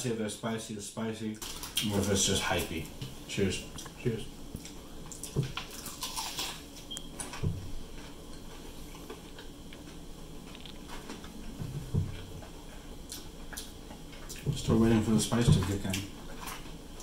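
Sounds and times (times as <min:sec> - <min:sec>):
chewing with small clicks: 0:03.7 - 0:11.4, 0:12.1 - 0:14.5.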